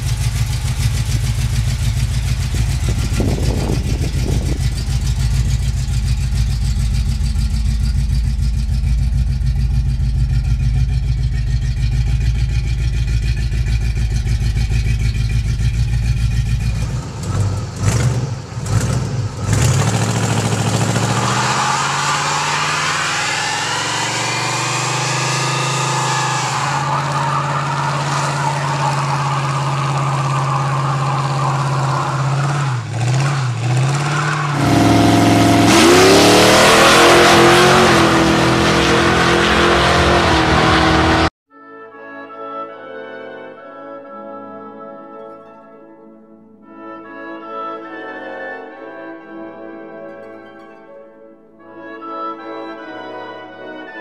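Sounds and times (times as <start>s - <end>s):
car engine idling and revving: 0.0s - 41.4s.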